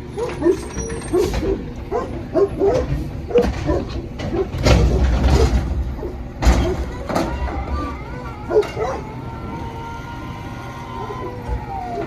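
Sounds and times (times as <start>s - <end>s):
garbage truck engine rumble: 0.0s - 12.0s
high-pitched squeals: 6.6s - 12.0s.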